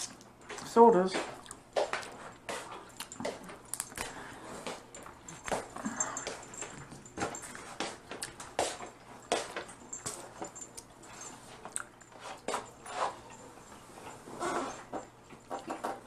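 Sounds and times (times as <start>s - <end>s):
wet chewing: 1.2s - 6.8s, 7.9s - 9.8s, 10.6s - 12.5s.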